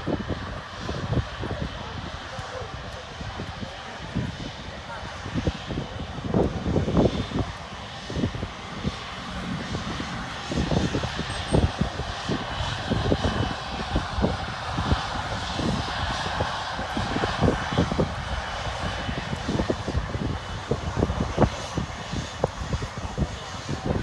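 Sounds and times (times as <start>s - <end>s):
jet engines roaring: 0.0s - 24.0s
low rumble: 8.0s - 12.4s.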